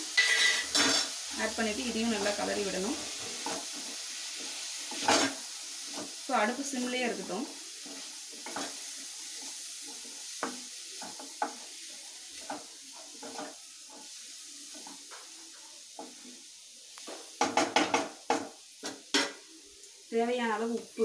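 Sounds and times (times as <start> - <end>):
food sizzling in a pan: 0.0 - 21.0
wooden spatula scraping a pan: 0.2 - 16.4.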